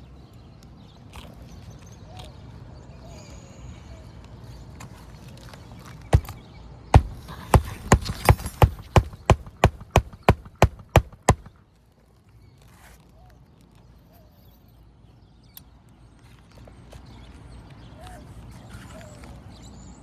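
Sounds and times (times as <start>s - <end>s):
hammer driving nails into shingles: 6.1s - 6.4s, 7.0s - 11.5s.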